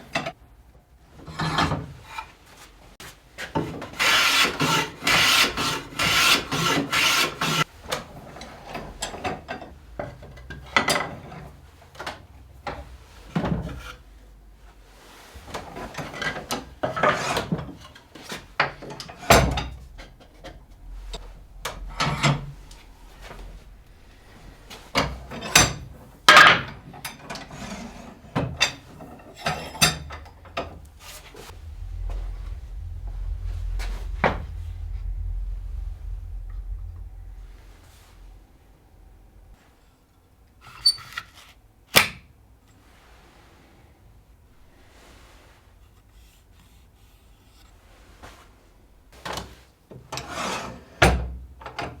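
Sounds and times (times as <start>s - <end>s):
scraping and rubbing: 18.3s - 26.2s, 27.8s - 39.6s.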